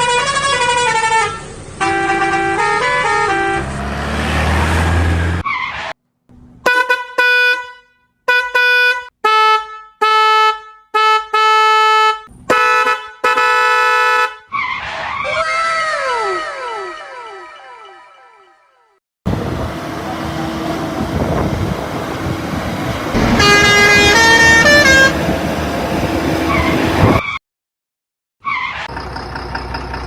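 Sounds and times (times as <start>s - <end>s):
car horn honking: 0.0s - 3.9s, 6.6s - 14.5s, 23.1s - 25.6s
rumbling noise: 21.0s - 26.3s.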